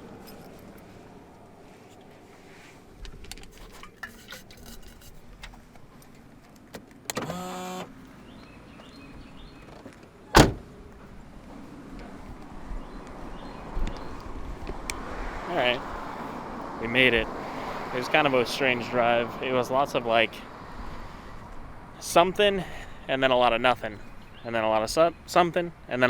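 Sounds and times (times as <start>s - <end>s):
loud sharp thump: 10.4s - 10.7s.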